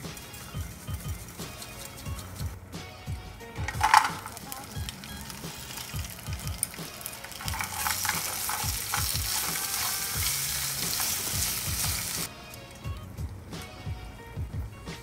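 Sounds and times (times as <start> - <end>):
wooden utensil clicking on pan: 3.6 - 12.2
food sizzling in hot oil: 3.8 - 12.3.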